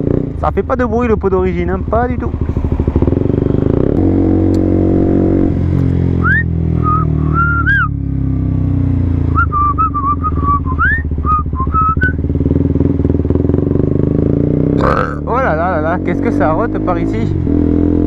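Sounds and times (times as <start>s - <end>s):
motorcycle engine running: 0.0s - 18.0s
person whistling a tune: 6.2s - 7.9s, 9.3s - 12.2s.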